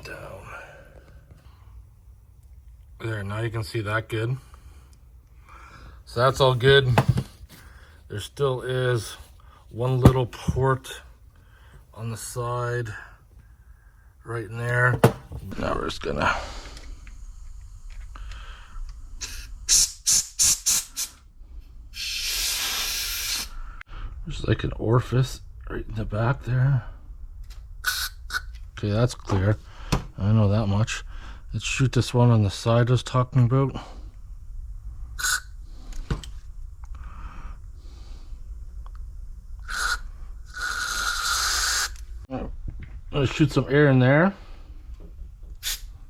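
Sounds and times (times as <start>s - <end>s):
pressurised spray hissing: 22.0s - 23.7s, 39.6s - 42.2s, 45.6s - 46.0s.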